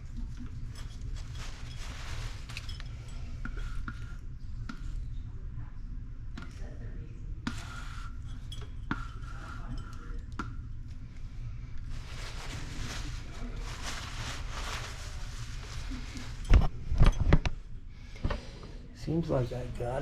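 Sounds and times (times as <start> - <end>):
hand tools clinking on plumbing fittings: 8.2 - 10.4.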